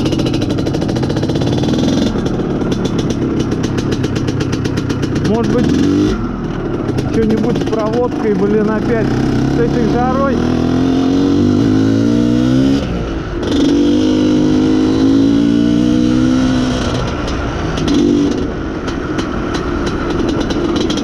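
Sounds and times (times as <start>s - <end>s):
two-stroke motorcycle engine revving: 0.0s - 21.0s.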